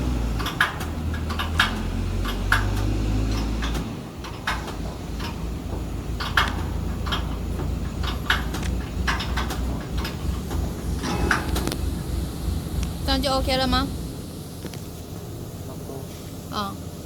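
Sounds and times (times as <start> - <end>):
low mechanical hum: 0.0 - 17.0
metallic clicks and knocks: 0.3 - 13.1.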